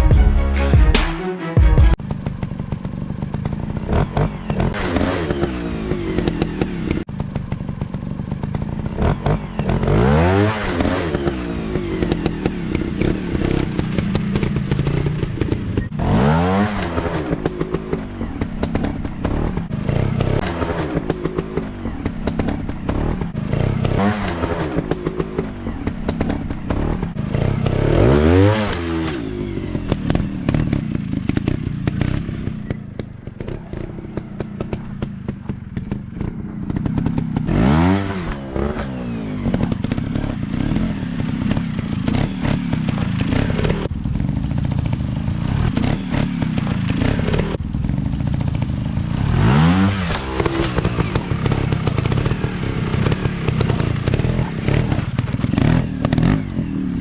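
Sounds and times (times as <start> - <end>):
dirt bike engine revving: 1.9 - 57.0
dirt bike engines running: 2.0 - 57.0
knocks and clatters: 16.6 - 28.0, 28.6 - 47.6, 49.8 - 57.0.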